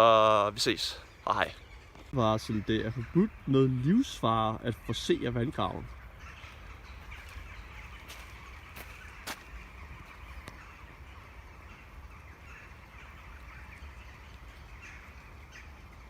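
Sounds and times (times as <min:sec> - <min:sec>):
faint bird calls: 0:00.0 - 0:16.0.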